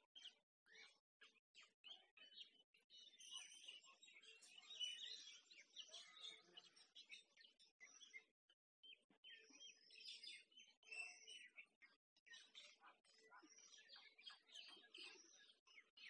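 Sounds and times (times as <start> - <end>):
small birds chirping and twittering: 0.0 - 16.0.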